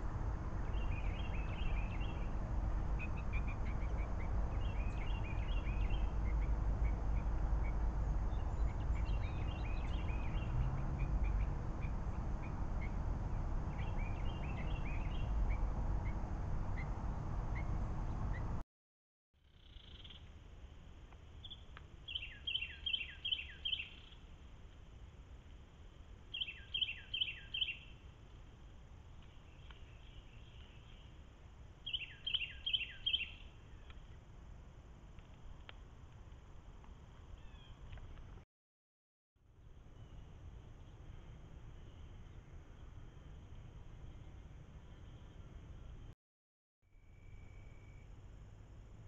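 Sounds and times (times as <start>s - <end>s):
steady low rumble: 0.0s - 18.6s
birds calling: 21.4s - 24.2s, 26.3s - 27.9s, 31.8s - 34.2s.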